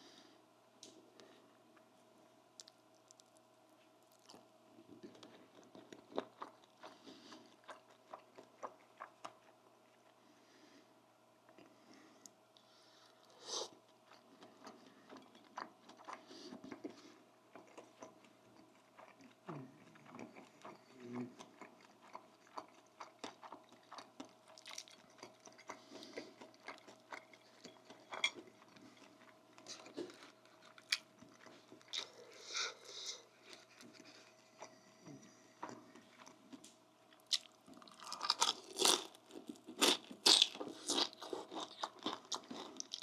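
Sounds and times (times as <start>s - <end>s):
faint steady hum: 0.0s - 43.0s
chewing and lip smacks: 2.6s - 3.4s, 4.0s - 10.2s, 14.0s - 32.2s.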